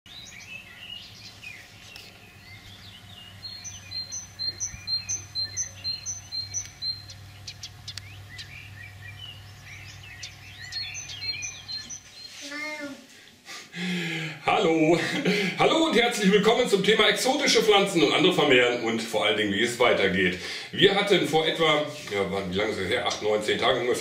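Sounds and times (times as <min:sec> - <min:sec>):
low steady hum: 0:00.1 - 0:12.4
birds singing and chirping: 0:00.1 - 0:12.6, 0:15.9 - 0:24.0.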